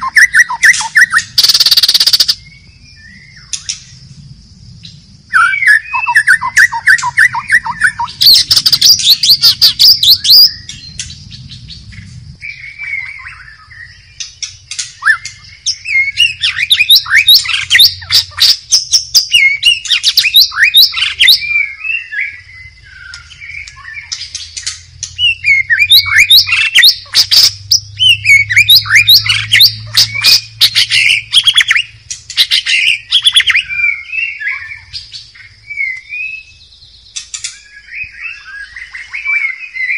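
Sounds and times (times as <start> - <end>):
bird singing whistles and chatters: 0.0 - 3.8, 5.3 - 11.6, 12.4 - 39.9.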